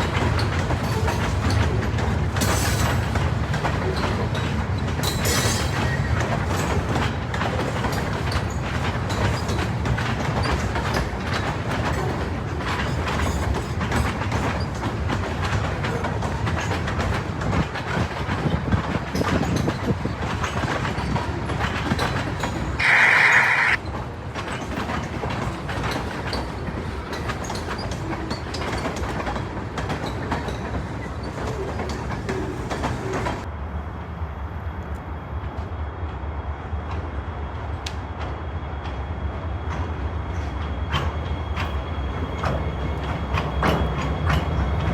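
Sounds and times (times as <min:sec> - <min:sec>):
wheels clicking over rail joints: 0:00.0 - 0:33.5
freight train cars rumbling: 0:00.0 - 0:44.9
brief high-pitched sound: 0:22.8 - 0:23.8.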